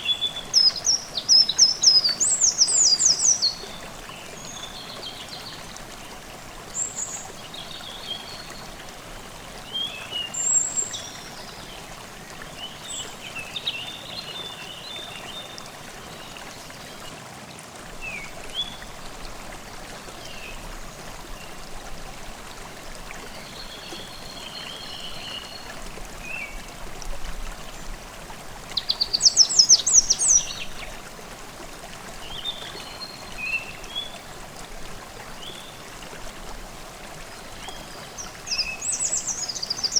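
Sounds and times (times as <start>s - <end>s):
small birds singing: 0.0s - 6.1s, 28.8s - 31.0s, 37.4s - 39.9s
stream babbling: 0.0s - 39.9s.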